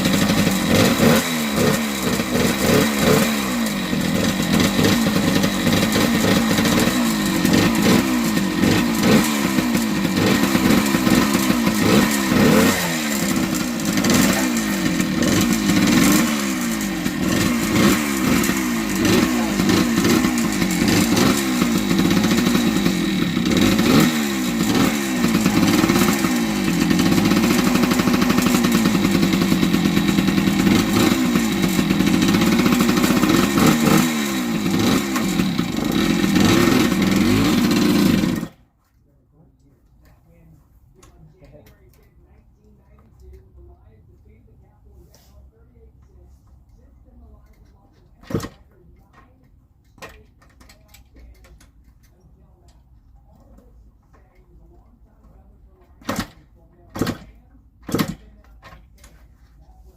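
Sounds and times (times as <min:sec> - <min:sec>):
two-stroke motorcycle engine revving: 0:00.0 - 0:38.6, 0:47.4 - 0:48.7, 0:55.8 - 0:58.8.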